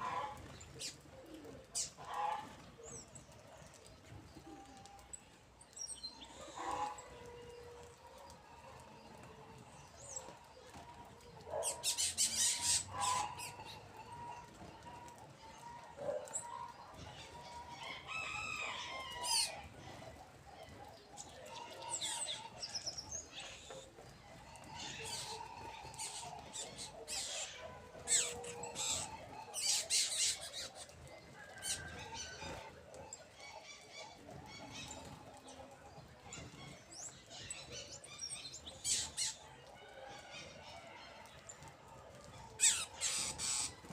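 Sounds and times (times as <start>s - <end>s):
birds feeding sharp sounds: 0.0s - 43.9s.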